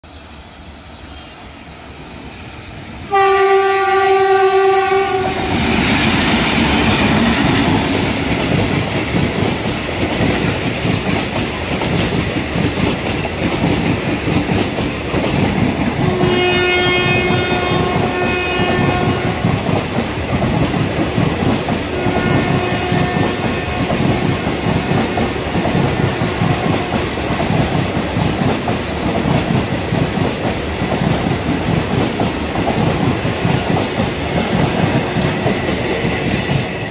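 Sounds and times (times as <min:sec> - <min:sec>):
train horn: 0:03.1 - 0:05.6, 0:16.0 - 0:19.5, 0:21.9 - 0:25.2
train wheels clattering over rail joints: 0:05.6 - 0:16.2, 0:17.3 - 0:36.9.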